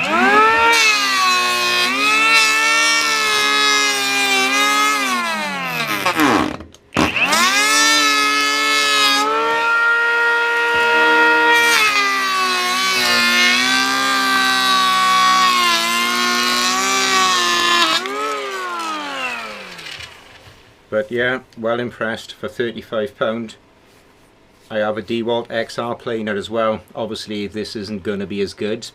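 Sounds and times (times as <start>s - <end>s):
electric planer whining on wood: 0.0s - 20.6s.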